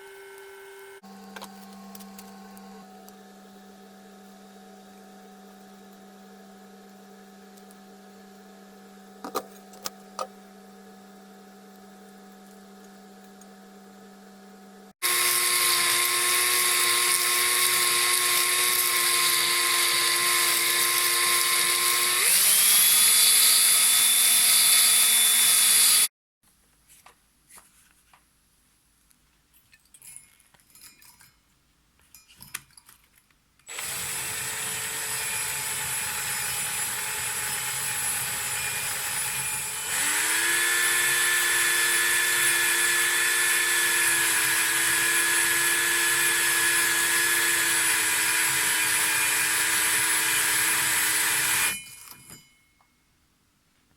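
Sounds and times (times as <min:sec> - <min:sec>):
electric power tool whining: 0:15.0 - 0:26.1, 0:33.7 - 0:52.2.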